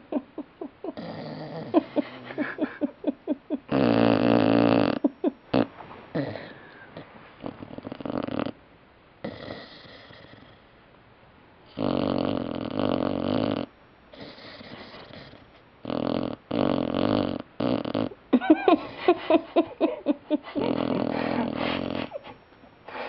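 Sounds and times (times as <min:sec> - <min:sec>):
puppy snoring raspy breaths: 0:03.7 - 0:08.6, 0:09.2 - 0:10.7, 0:11.7 - 0:18.2, 0:20.6 - 0:23.0.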